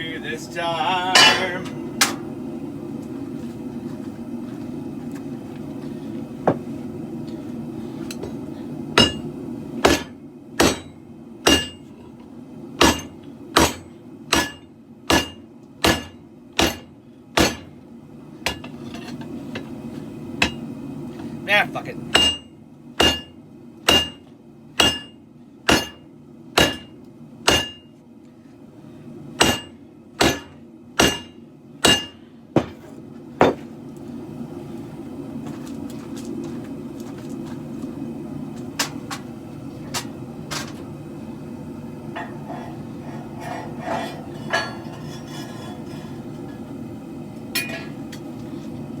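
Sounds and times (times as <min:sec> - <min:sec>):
hammer striking steel on anvil: 0:01.1 - 0:02.3, 0:09.0 - 0:11.9, 0:12.8 - 0:17.7, 0:22.1 - 0:24.2, 0:24.8 - 0:26.0, 0:26.6 - 0:27.9, 0:29.4 - 0:32.8, 0:47.5 - 0:48.3.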